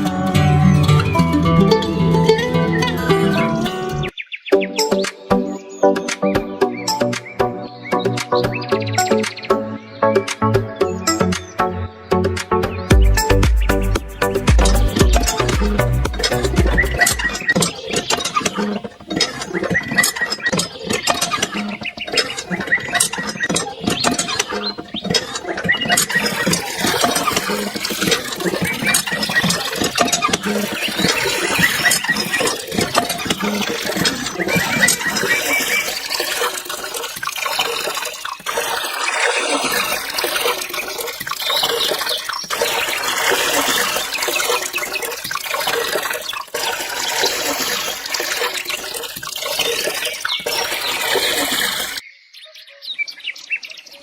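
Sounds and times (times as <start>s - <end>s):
water running and splashing: 13.2s - 52.0s.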